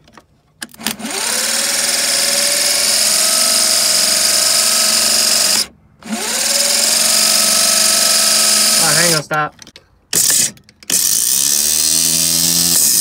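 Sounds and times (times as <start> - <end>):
starter motor whining: 0.7 - 9.1.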